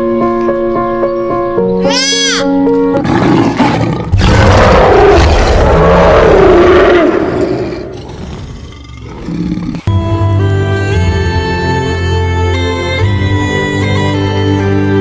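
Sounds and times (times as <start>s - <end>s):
background music: 0.0s - 5.7s, 9.8s - 15.0s
big cat roaring: 3.0s - 9.9s.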